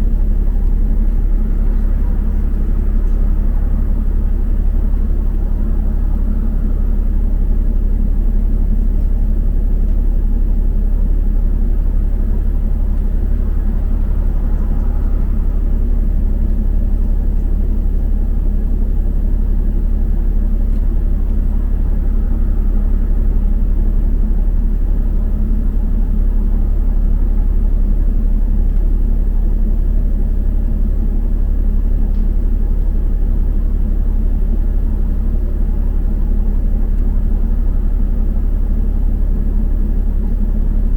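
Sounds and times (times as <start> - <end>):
road noise: 0.0 - 31.3
bus engine rumbling: 0.0 - 40.9.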